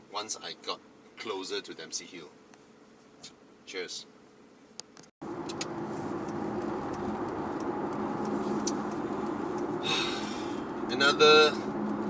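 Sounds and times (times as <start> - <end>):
car cabin road noise: 4.8 - 12.0.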